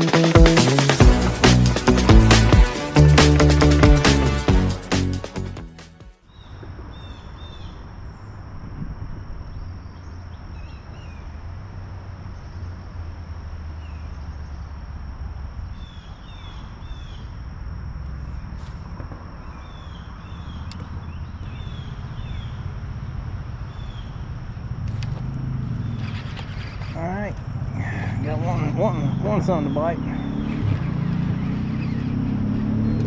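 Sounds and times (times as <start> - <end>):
low steady rumble: 14.5 - 29.9
birds chirping: 15.5 - 33.0.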